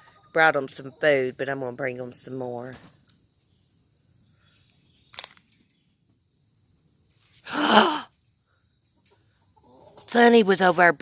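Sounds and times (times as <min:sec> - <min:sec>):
crickets trilling: 0:00.0 - 0:11.0
sharp click: 0:05.1 - 0:05.7
loud breathy cry: 0:07.4 - 0:08.1.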